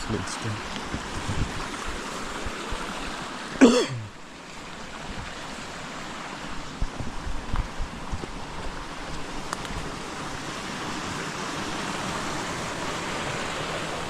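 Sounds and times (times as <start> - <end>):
stream running: 0.0 - 14.0
person grunting: 3.6 - 4.1.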